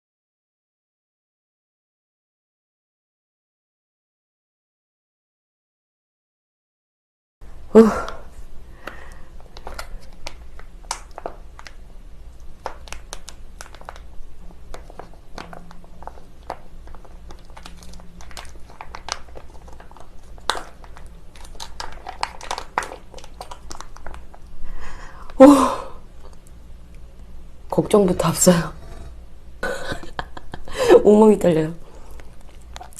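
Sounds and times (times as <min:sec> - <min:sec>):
chewing: 0:08.8 - 0:24.6, 0:32.0 - 0:32.9
food packaging crinkling: 0:12.6 - 0:24.6.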